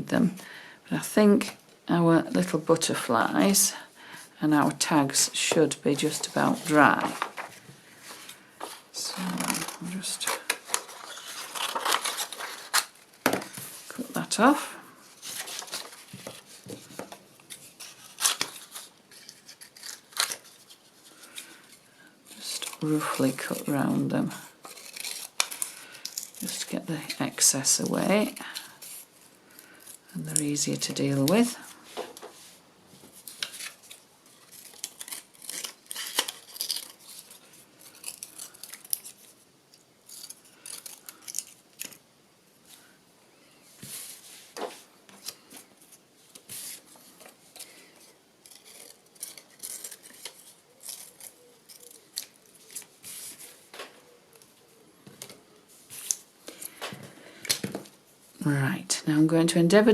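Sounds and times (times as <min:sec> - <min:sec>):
scissors snipping paper: 0:33.4 - 0:39.3.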